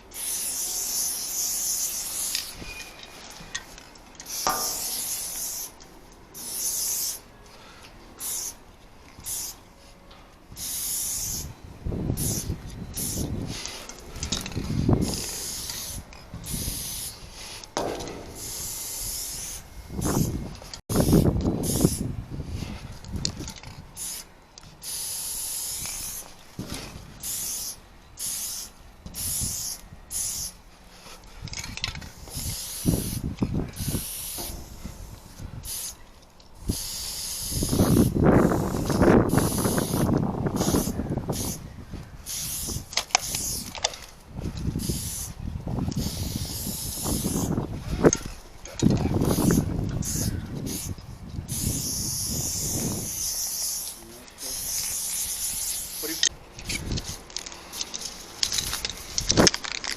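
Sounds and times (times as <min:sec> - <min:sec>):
aerosol spray can hissing: 0:00.2 - 0:02.5, 0:04.3 - 0:05.8, 0:10.6 - 0:11.5, 0:32.3 - 0:34.7, 0:36.7 - 0:41.6, 0:46.0 - 0:47.5, 0:51.5 - 0:56.2.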